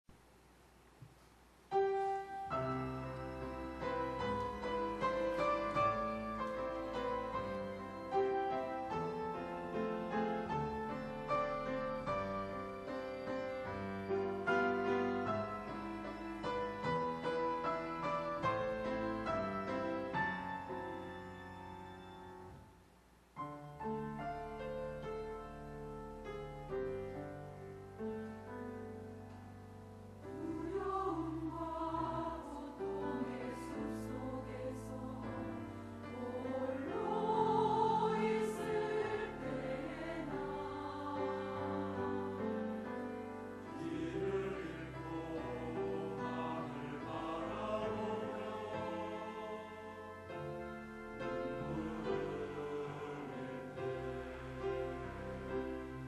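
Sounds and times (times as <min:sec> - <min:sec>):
piano accompaniment: 0:01.7 - 0:22.8, 0:23.4 - 0:56.0
choir singing: 0:02.4 - 0:21.1, 0:30.2 - 0:56.0.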